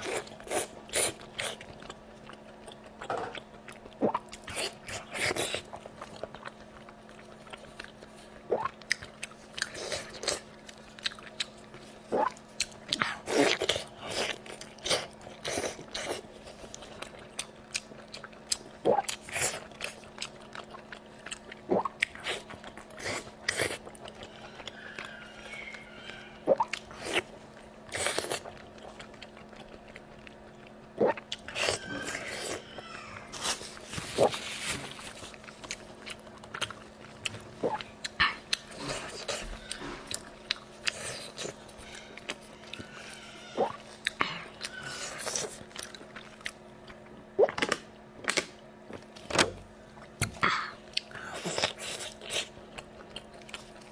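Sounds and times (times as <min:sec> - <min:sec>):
faint steady hum: 0:00.0 - 0:53.9
wet chewing and lip smacks: 0:35.0 - 0:47.7.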